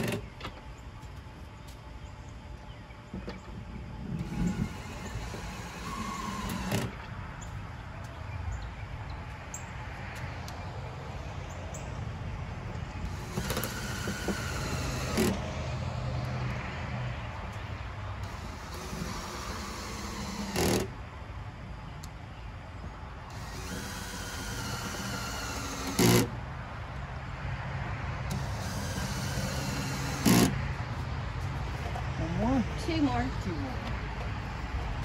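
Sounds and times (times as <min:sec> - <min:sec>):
cordless drill driving screws: 0:00.0 - 0:00.3, 0:04.1 - 0:07.0, 0:13.0 - 0:15.5, 0:18.2 - 0:21.0, 0:23.3 - 0:26.3, 0:28.3 - 0:30.6.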